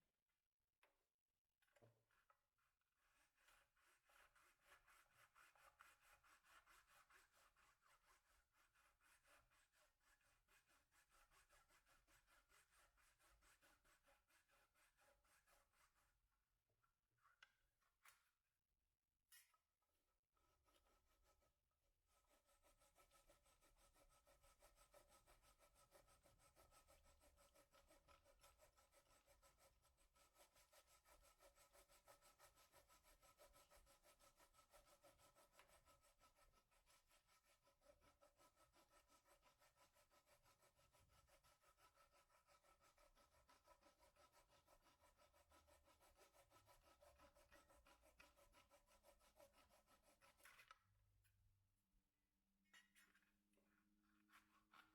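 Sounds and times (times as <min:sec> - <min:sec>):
sanding wood by hand: 0:03.1 - 0:16.1, 0:22.1 - 0:50.4.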